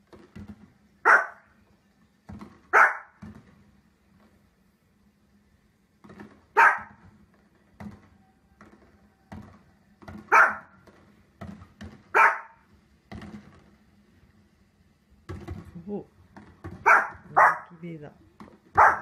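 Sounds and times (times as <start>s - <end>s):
faint thumps and pops: 0.0s - 1.0s, 6.0s - 13.9s, 15.1s - 17.4s
small dog barking: 1.0s - 1.5s, 2.7s - 3.2s, 6.6s - 7.0s, 10.3s - 10.8s, 12.1s - 12.6s, 16.8s - 17.8s, 18.8s - 19.0s.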